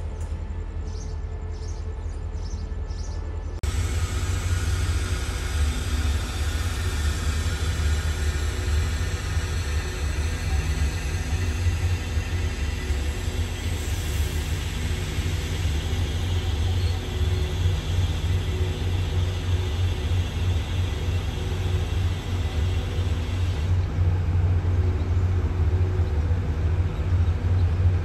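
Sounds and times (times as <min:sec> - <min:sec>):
diesel train rumbling: 0:00.0 - 0:28.0
hiss: 0:03.6 - 0:23.8.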